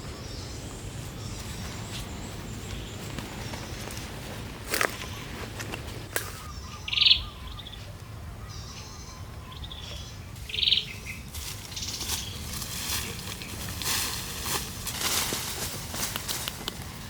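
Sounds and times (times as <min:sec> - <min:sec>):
bird trilled calls: 0:06.3 - 0:07.8, 0:08.4 - 0:12.4
faint bird chirps: 0:06.3 - 0:12.4.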